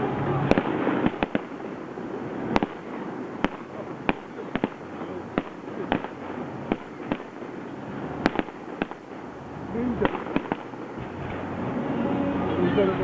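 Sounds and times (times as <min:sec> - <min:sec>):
firework shells bursting: 0:00.5 - 0:11.5
low rumble: 0:04.7 - 0:13.0.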